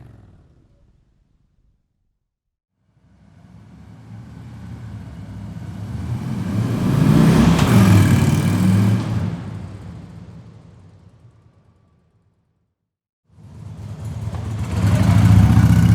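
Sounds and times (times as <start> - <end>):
motorcycle driving past: 0.0 - 2.0, 3.1 - 10.3, 13.6 - 15.9.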